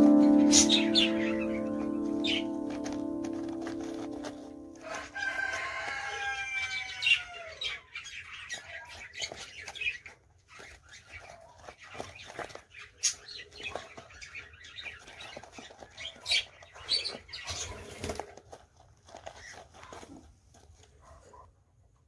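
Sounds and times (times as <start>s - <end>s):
small birds chirping: 0.0s - 18.4s, 19.0s - 20.2s
wings flapping and rustling: 8.0s - 20.7s.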